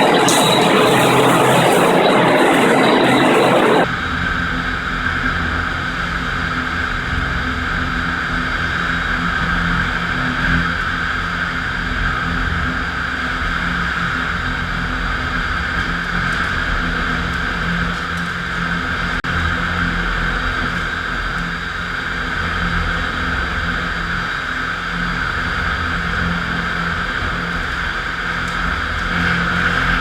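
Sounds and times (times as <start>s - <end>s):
concrete floor grinder running: 0.1s - 3.9s.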